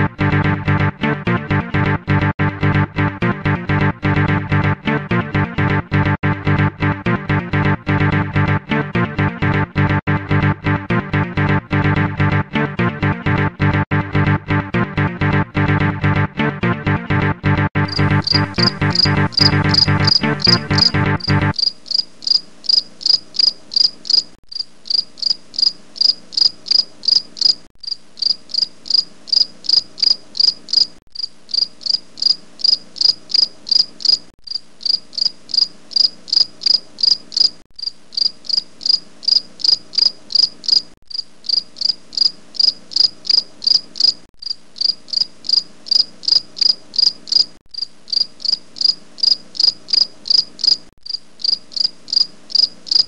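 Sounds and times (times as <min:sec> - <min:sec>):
cricket chirping: 0:21.6 - 0:53.0.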